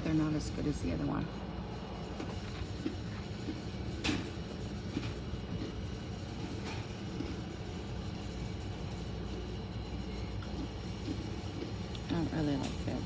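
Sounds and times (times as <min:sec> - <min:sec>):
cookies being chewed: 0:02.2 - 0:04.0, 0:04.8 - 0:12.1.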